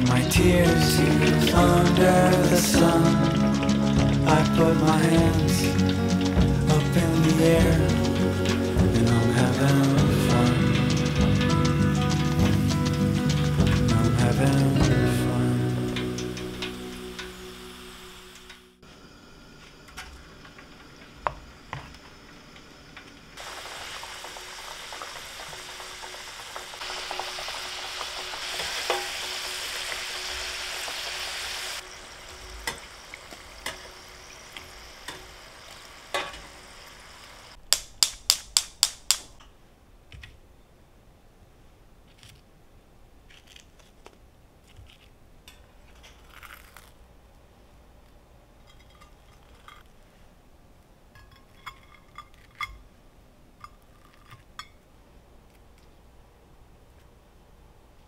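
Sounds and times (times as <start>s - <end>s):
food sizzling in hot oil: 0.0s - 18.6s, 23.4s - 37.6s
sharp clicks: 37.6s - 39.5s
metal tongs clinking: 48.6s - 49.9s, 51.1s - 52.8s.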